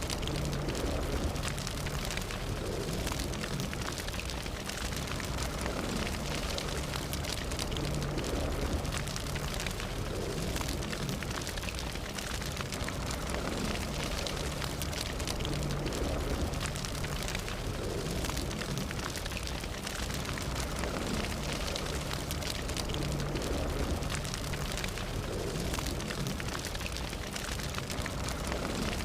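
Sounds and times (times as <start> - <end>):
fire crackling and popping: 0.0 - 29.0.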